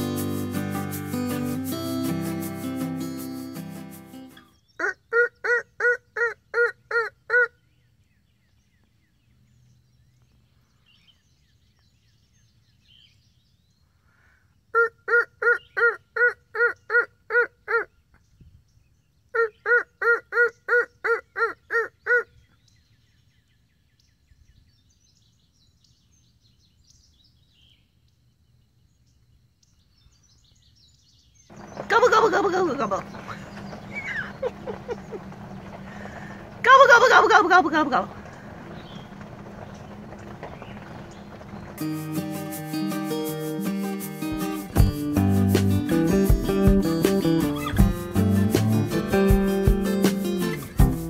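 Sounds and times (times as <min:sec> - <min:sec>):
turkey yelps: 0:04.8 - 0:07.6, 0:14.8 - 0:17.9, 0:19.4 - 0:22.3, 0:33.2 - 0:35.2.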